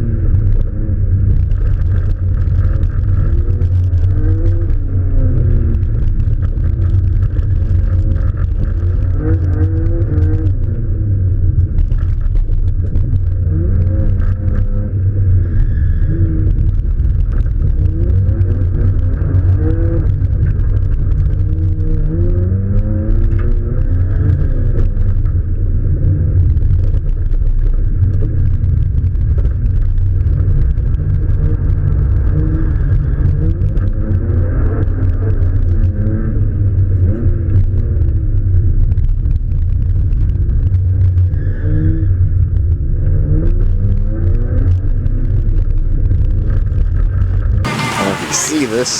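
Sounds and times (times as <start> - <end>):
car engine revving: 47.6 - 48.9.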